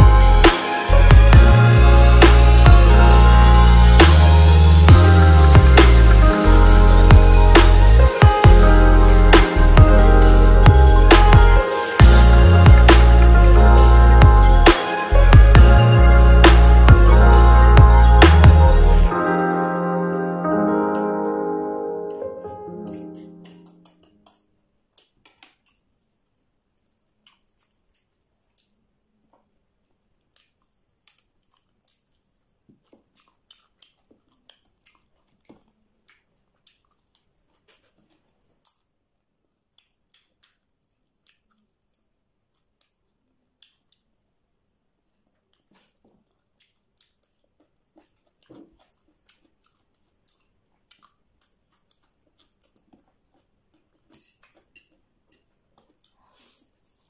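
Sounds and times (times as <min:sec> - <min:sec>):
sharp clicks and crunches: 0:22.8 - 0:25.9
chewing and biting chicken wings: 0:29.9 - 0:39.0, 0:39.6 - 0:44.1, 0:45.1 - 0:57.0.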